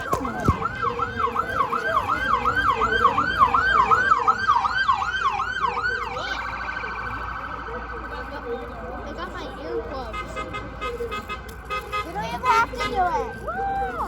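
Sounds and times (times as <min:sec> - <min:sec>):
emergency siren yelping: 0:00.0 - 0:09.0.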